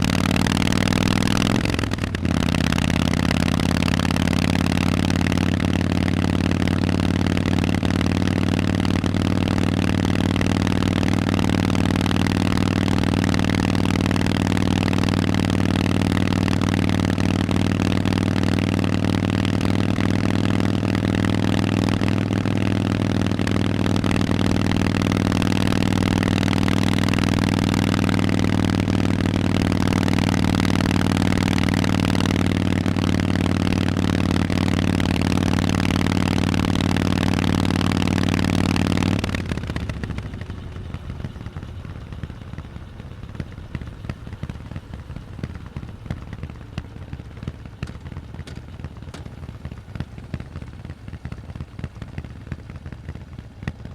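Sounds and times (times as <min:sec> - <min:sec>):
motorcycle engine running: 0:00.0 - 0:53.9
faint crackling clicks: 0:39.2 - 0:53.7.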